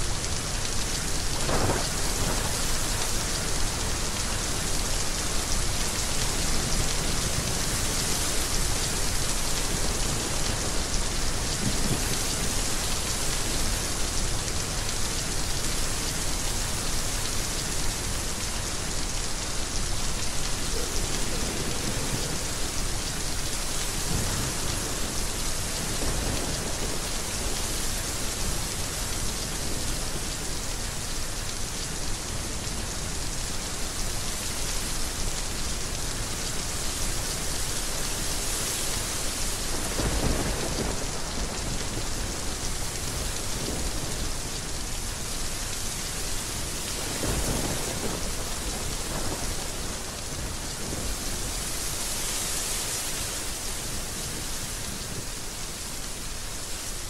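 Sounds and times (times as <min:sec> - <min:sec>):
heavy rain hissing: 0:00.0 - 0:57.0
low thunder rumbling: 0:01.4 - 0:03.8, 0:46.9 - 0:51.2.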